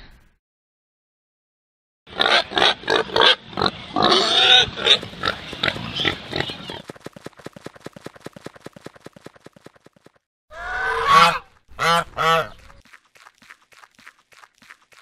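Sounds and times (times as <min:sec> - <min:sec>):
pig grunting and oinking: 0:02.1 - 0:06.8
pig squealing: 0:02.2 - 0:06.8, 0:10.5 - 0:11.4.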